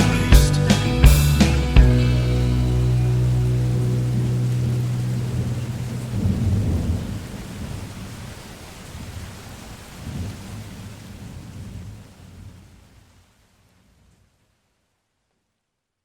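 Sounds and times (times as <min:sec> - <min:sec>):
held music notes: 0:00.0 - 0:06.8
thunder rolling: 0:01.8 - 0:09.2
rain: 0:02.0 - 0:16.0.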